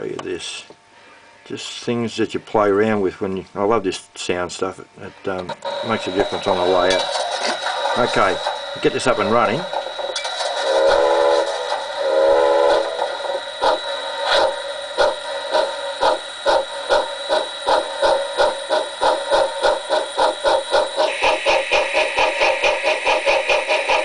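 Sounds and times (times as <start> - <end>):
steam locomotive chuffing: 5.7 - 24.0
steam whistle blasts: 10.4 - 24.0.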